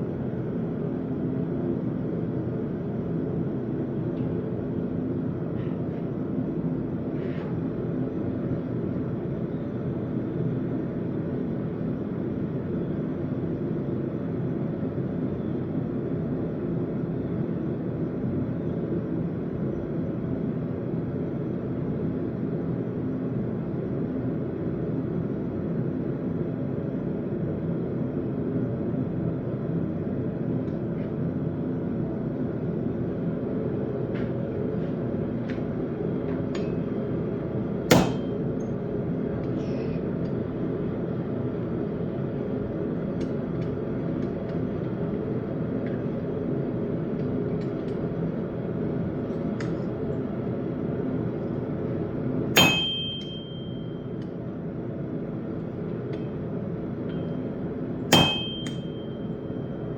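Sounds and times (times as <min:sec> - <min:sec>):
hammer blows on an anvil: 0:37.9 - 0:38.5, 0:52.6 - 0:53.9, 0:58.1 - 0:59.3.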